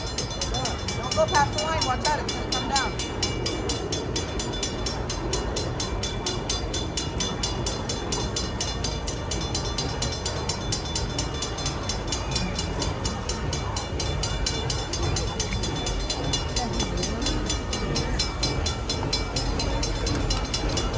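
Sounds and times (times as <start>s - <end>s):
railroad crossing bells ringing: 0.0s - 20.9s.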